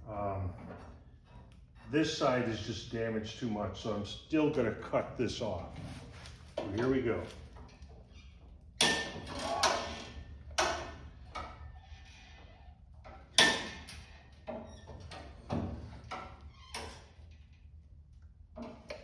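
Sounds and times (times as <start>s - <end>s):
metal clanks and knocks: 5.8s - 12.0s, 13.0s - 16.4s.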